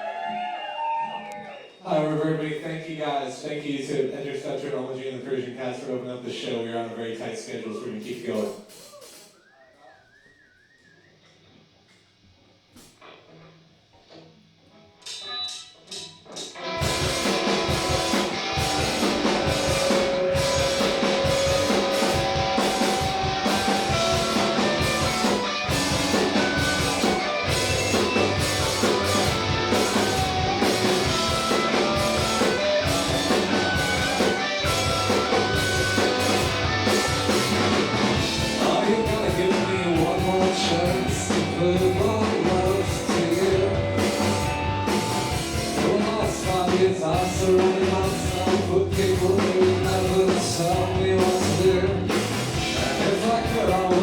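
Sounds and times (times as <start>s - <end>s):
rock band playing: 14.9s - 54.0s.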